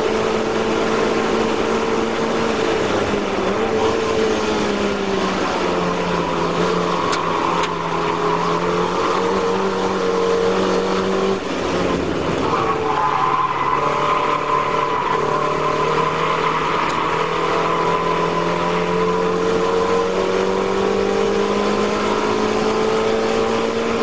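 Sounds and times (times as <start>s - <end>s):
car engine at high revs: 0.0s - 24.0s.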